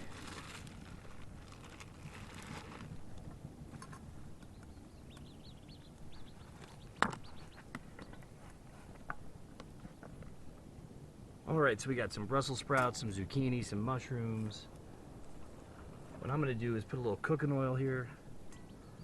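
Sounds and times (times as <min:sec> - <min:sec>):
camp gear rustling: 0:00.0 - 0:04.6, 0:06.1 - 0:10.6
bird chirping: 0:04.3 - 0:08.3, 0:18.5 - 0:19.0.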